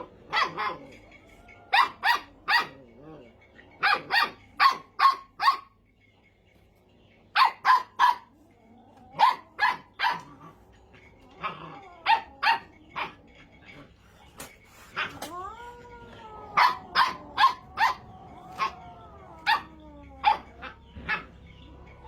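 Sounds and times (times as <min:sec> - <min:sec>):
puppy yapping: 0:09.0 - 0:10.6, 0:11.3 - 0:13.2, 0:14.9 - 0:21.4.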